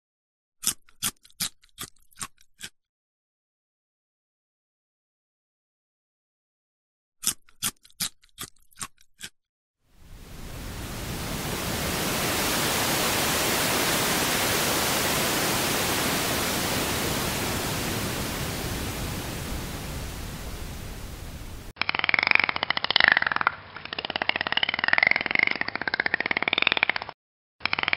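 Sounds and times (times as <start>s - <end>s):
rushing hiss of water: 10.0s - 21.8s.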